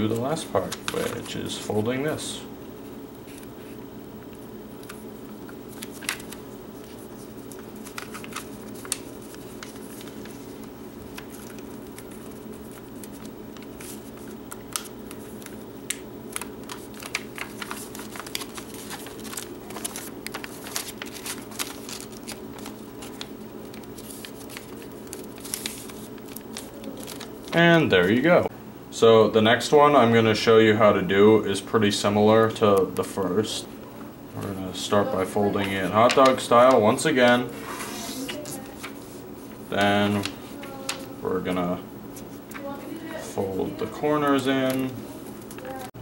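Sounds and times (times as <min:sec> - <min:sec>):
paper crinkles and rustles: 0:00.0 - 0:01.5, 0:04.8 - 0:28.2, 0:35.5 - 0:41.1, 0:42.2 - 0:45.9
paper being folded: 0:00.0 - 0:01.7, 0:03.2 - 0:28.3, 0:34.4 - 0:46.0.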